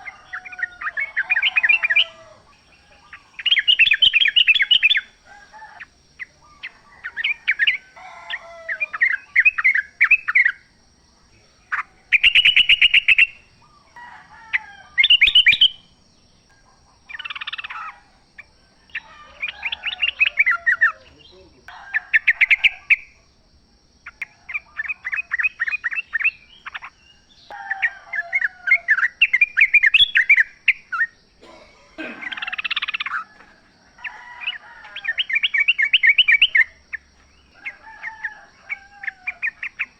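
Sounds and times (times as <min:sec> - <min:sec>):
bird singing rapid notes: 0:00.0 - 0:05.2, 0:11.4 - 0:13.9, 0:15.0 - 0:16.4, 0:32.2 - 0:33.3.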